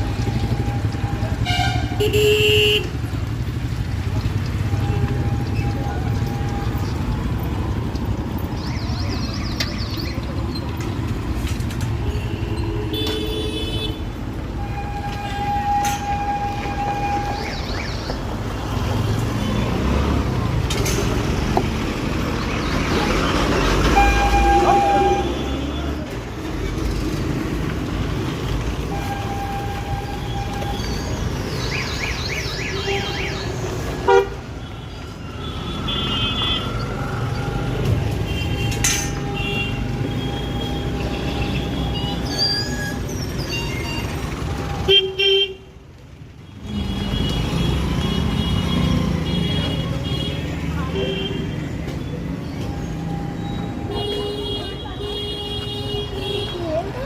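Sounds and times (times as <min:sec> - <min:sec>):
roadside traffic: 0:00.0 - 0:57.0
vehicle horn tooting: 0:01.4 - 0:02.9, 0:24.0 - 0:26.0, 0:34.1 - 0:34.4.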